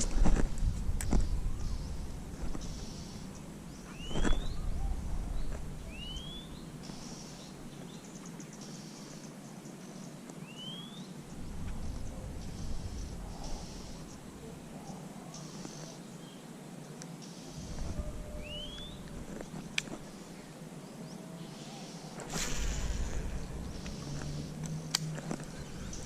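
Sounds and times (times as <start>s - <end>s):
bird whistled call: 3.9s - 5.0s, 5.9s - 6.5s, 17.6s - 19.1s
low rumble: 11.4s - 14.5s, 17.6s - 19.6s, 22.3s - 26.0s
insect buzz: 17.2s - 26.0s.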